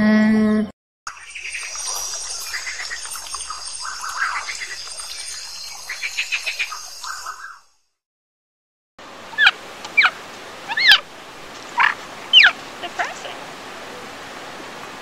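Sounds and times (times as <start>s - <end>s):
birds chirping: 1.1s - 7.7s, 9.3s - 14.1s.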